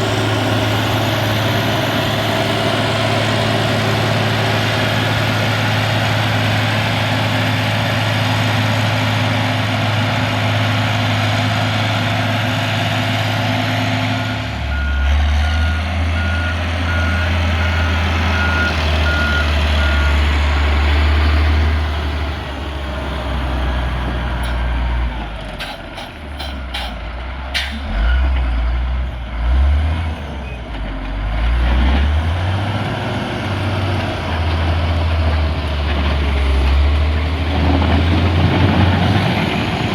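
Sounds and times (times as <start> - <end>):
heavy diesel machine running: 0.0 - 39.9
reversing alarm beeps: 14.2 - 20.2.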